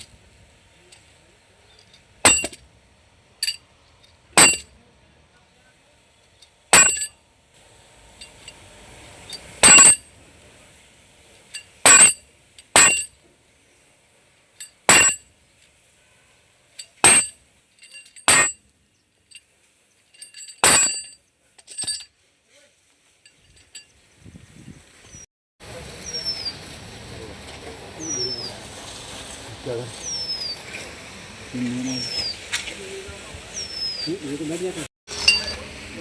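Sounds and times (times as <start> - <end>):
metal-on-metal strikes ringing: 2.3 - 2.6, 4.4 - 4.7, 6.8 - 7.1, 9.6 - 10.0, 11.6 - 12.2, 12.8 - 13.1, 14.6 - 15.2, 16.8 - 18.6, 20.2 - 22.0.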